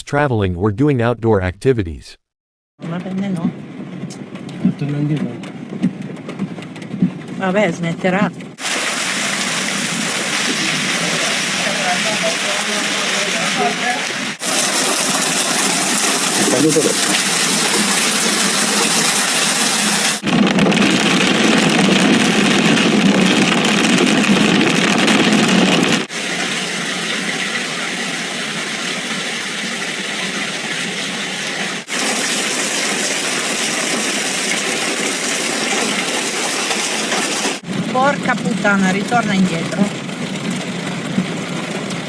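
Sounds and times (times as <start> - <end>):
heavy hail and rain: 8.6 - 42.0.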